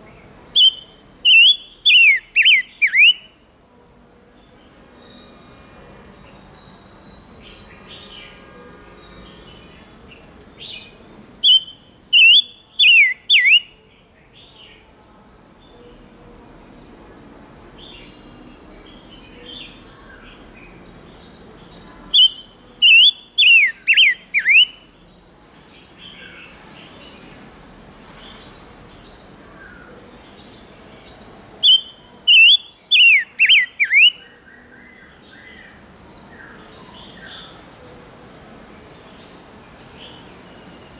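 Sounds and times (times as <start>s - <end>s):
soft bird chirps: 0.0s - 3.8s, 4.4s - 14.9s, 17.7s - 25.0s, 28.2s - 37.7s
bird song downward notes: 0.0s - 14.8s, 17.8s - 25.2s, 28.3s - 37.6s.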